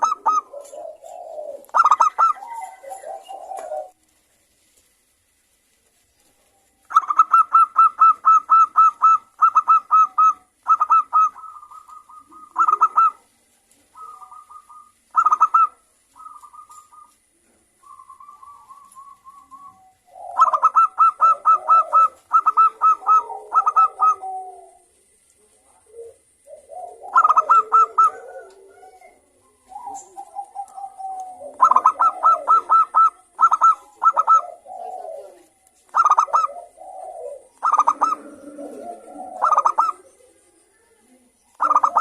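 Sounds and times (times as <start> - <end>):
lower-pitched cooing: 0.0 - 4.0, 6.9 - 42.0
doves cooing: 0.0 - 4.2, 6.2 - 42.0.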